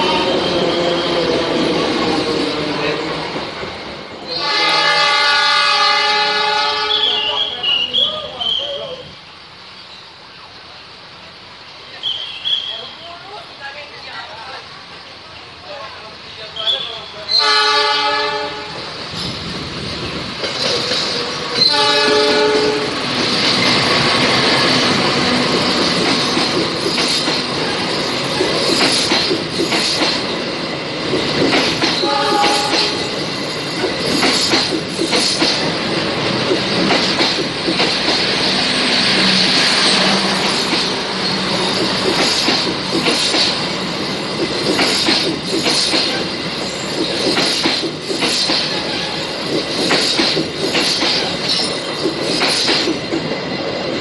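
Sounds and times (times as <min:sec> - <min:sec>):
diesel locomotive horn blasts: 0:00.0 - 0:01.2, 0:04.3 - 0:07.3, 0:17.3 - 0:18.8, 0:21.6 - 0:23.0, 0:32.0 - 0:33.0
train wheels clattering over rail joints: 0:19.1 - 0:54.0.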